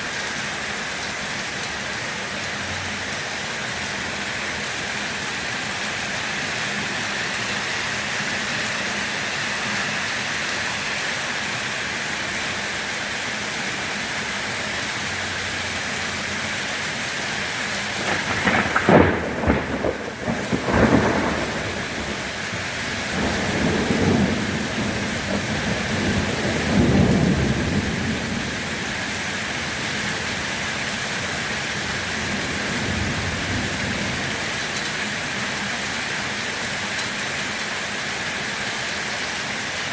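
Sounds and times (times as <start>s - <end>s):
steady rain: 0.0s - 39.9s
sharp thunder crack: 18.0s - 22.3s
low rumbling thunder: 18.0s - 29.2s, 32.1s - 34.4s.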